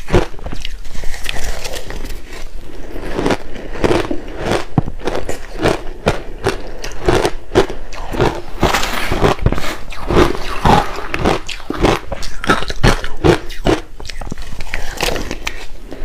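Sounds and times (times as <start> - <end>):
crushed ice crunching in mouth: 0.0 - 15.7.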